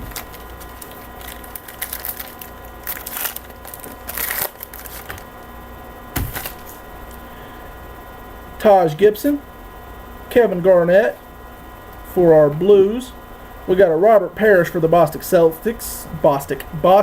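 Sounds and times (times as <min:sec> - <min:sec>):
cards crackling and rustling: 0:00.0 - 0:05.3, 0:06.2 - 0:07.2
electrical hum: 0:00.0 - 0:17.0.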